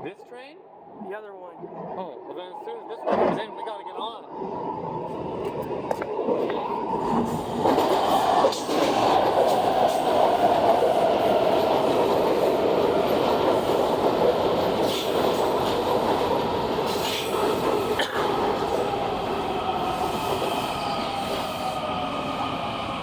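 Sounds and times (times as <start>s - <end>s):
train wheels rumbling on rail: 5.4s - 23.0s.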